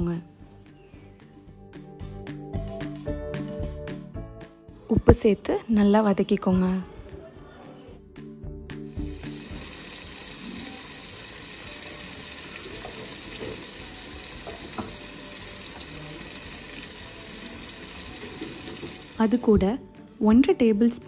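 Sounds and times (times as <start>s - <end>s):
masala sizzling in oil: 8.9s - 19.6s.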